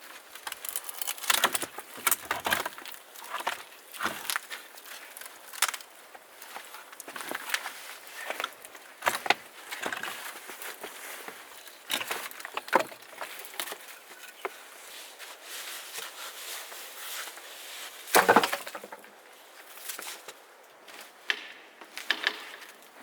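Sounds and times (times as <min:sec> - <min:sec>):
wood knocking and cracking: 0:00.4 - 0:07.6, 0:11.9 - 0:13.8, 0:18.1 - 0:19.1.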